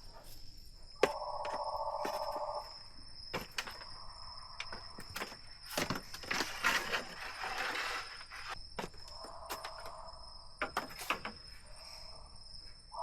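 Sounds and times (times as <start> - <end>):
sharp wooden knocks and clicks: 3.3 - 6.7, 10.6 - 11.4.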